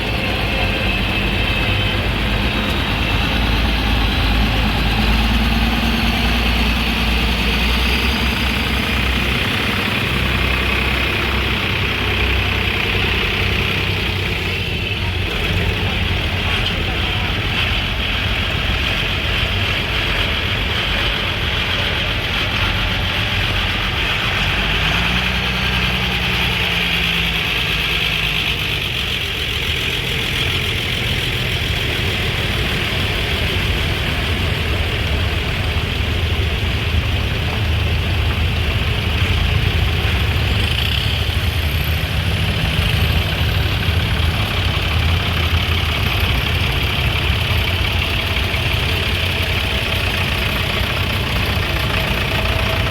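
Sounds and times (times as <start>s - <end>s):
engine idling: 0.0s - 52.9s.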